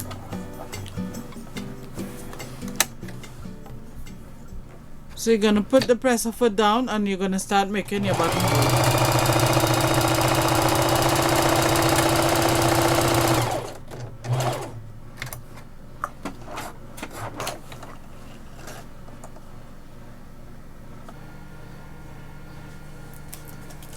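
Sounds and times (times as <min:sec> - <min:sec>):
sewing machine running: 0:07.9 - 0:14.8.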